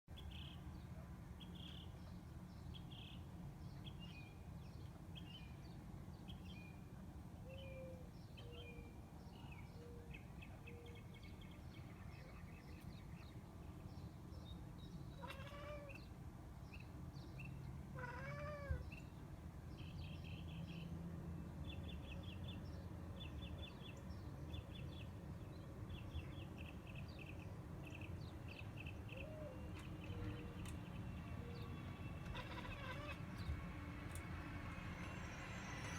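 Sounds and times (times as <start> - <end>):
small birds chirping and trilling: 7.5 - 34.4
cat chirping: 15.2 - 16.0, 18.0 - 18.8, 32.2 - 33.2.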